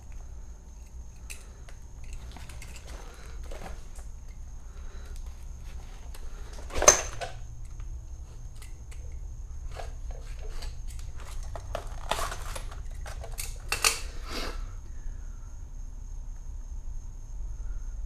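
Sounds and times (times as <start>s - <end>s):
metal clatter: 0.8s - 4.4s, 5.8s - 14.0s
metal parts clinking: 0.8s - 4.5s, 5.8s - 14.2s.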